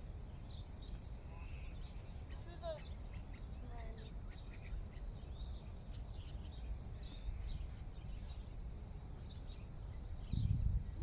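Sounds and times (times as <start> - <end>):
wind rumble on microphone: 7.0 - 11.0.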